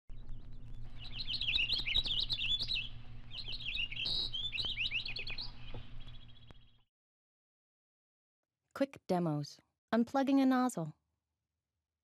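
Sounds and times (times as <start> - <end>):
songbirds chirping: 0.1 - 6.8
steady low hum: 0.1 - 6.8.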